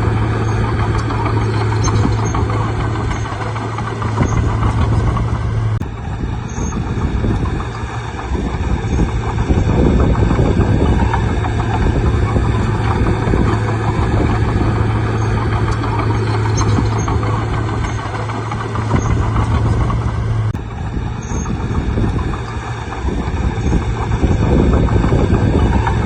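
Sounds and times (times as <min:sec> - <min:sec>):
bulldozer diesel engine running: 0:00.0 - 0:26.0.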